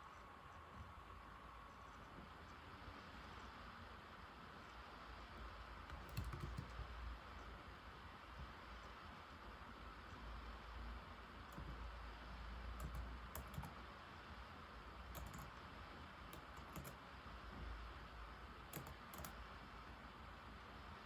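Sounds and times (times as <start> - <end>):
background hiss: 0.0 - 21.0
laptop keyboard typing: 5.8 - 7.5, 11.4 - 11.9, 12.7 - 13.9, 15.0 - 17.1, 18.6 - 19.6.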